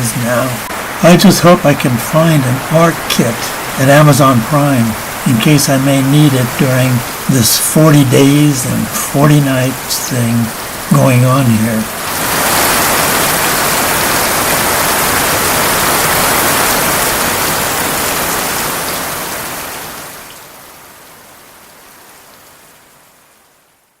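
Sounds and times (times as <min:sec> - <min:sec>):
heavy rain downpour: 0:00.0 - 0:24.0.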